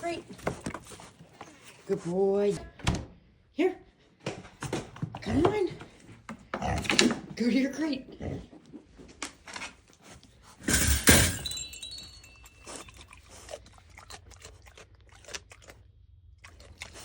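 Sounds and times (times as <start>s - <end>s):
pet crate rattling and clanking: 10.6s - 12.5s
metallic ring: 10.7s - 13.0s.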